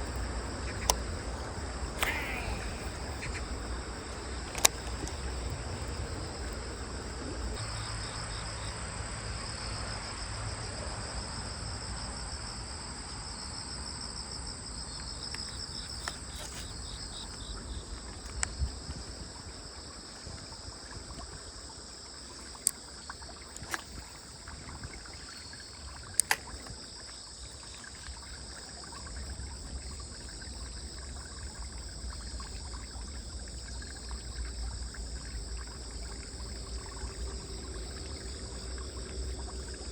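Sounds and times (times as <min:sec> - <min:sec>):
crickets trilling: 0:00.0 - 0:39.9
sharp clicks: 0:00.1 - 0:06.0, 0:23.5 - 0:24.1, 0:26.0 - 0:26.7.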